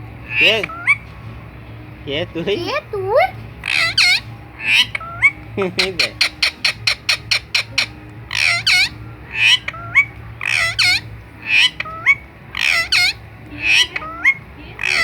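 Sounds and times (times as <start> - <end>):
parakeet squawking: 0.2 - 1.1, 2.3 - 15.0.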